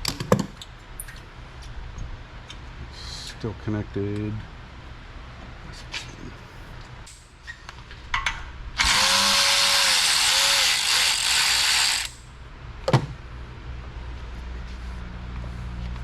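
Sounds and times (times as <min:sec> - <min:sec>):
power tool running: 0:08.8 - 0:12.2.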